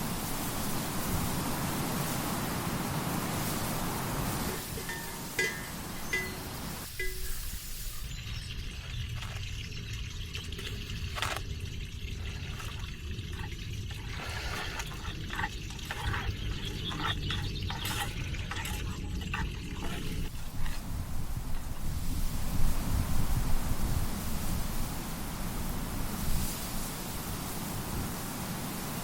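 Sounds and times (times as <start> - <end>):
water trickling and dripping: 4.4 - 22.3
small splashes: 8.6 - 20.9.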